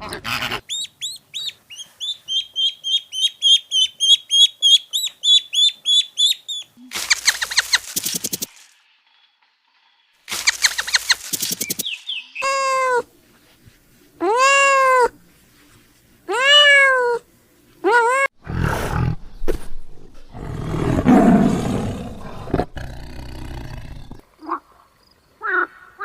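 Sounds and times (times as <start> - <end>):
rough noisy animal call: 20.3 - 24.6.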